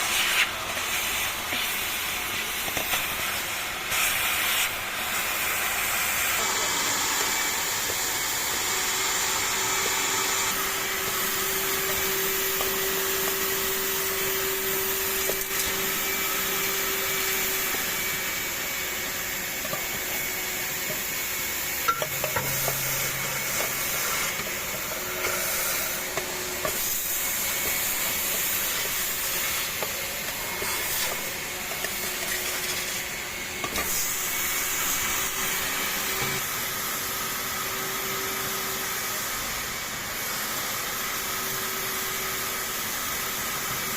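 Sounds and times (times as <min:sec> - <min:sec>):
industrial vacuum cleaner running: 0:00.0 - 0:43.9.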